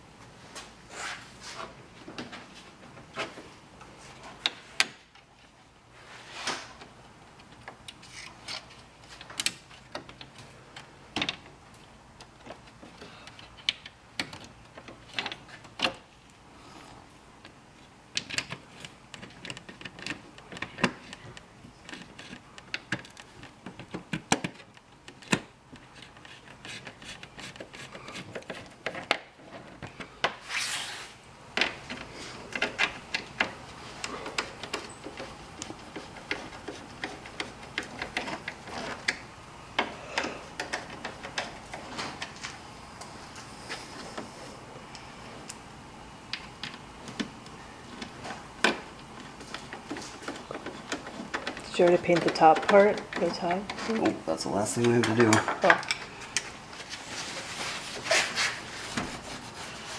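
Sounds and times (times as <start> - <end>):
scraping on car parts: 56.1 - 59.9.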